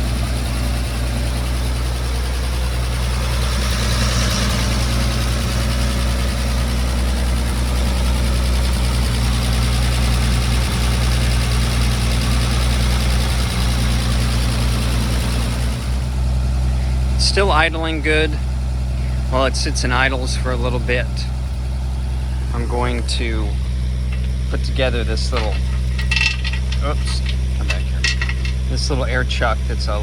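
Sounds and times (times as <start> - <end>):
engine fan turning: 0.0 - 30.0
truck engine idling: 0.0 - 30.0.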